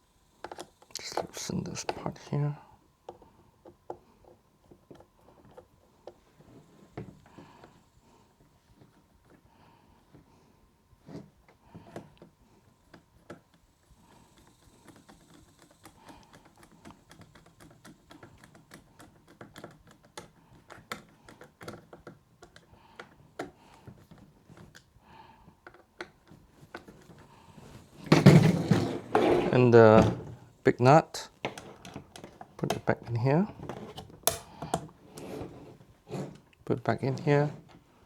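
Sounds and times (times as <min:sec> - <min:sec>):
clicks and taps of small parts: 0:14.4 - 0:24.9.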